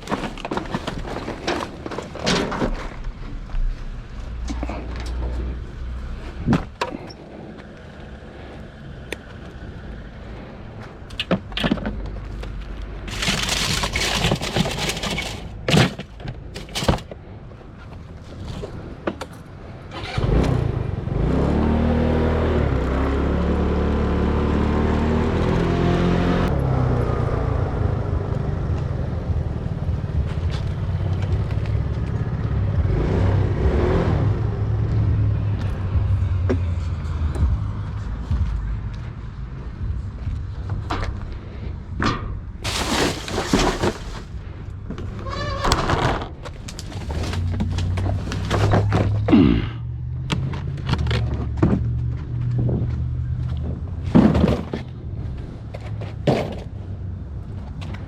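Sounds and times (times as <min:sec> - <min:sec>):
knocks and clatters: 0:00.0 - 0:05.4, 0:11.1 - 0:17.3, 0:42.0 - 0:44.3
vehicle engine starting and running: 0:00.0 - 0:17.2, 0:19.7 - 0:45.2, 0:45.8 - 0:58.0.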